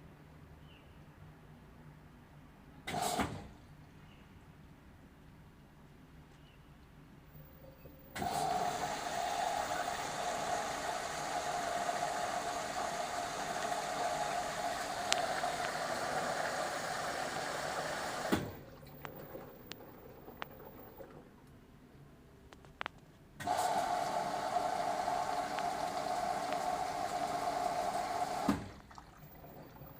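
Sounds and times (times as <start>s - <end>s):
washing machine drain pump whine: 7.9s - 21.4s, 23.4s - 29.9s.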